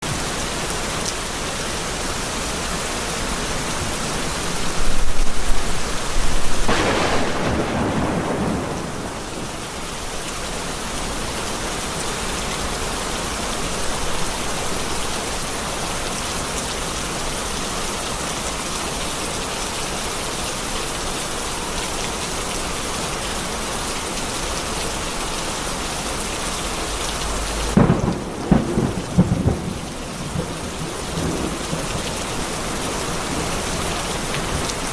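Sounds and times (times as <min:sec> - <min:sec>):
heavy rain: 0:00.0 - 0:34.9
thunder rumbling: 0:04.8 - 0:09.9, 0:27.6 - 0:32.2.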